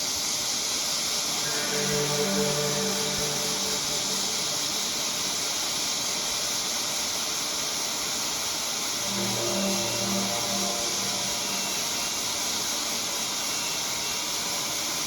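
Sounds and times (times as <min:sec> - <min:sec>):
hot air station hissing: 0:00.0 - 0:15.0
low pulsing tones: 0:01.3 - 0:06.5, 0:08.8 - 0:13.6.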